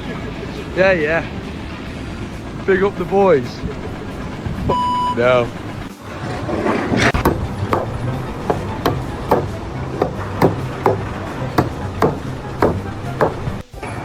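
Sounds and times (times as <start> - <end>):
steady low hum: 0.0 - 14.0
sharp knocks: 6.9 - 13.7.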